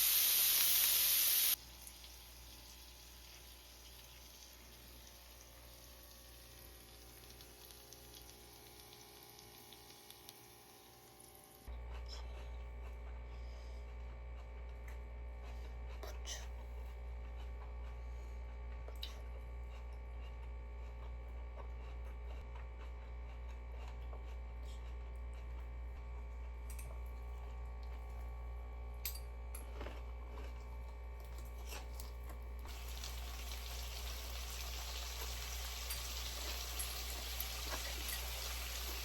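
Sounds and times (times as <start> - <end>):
low steady hum: 1.4 - 39.0
tap water running: 32.7 - 39.0.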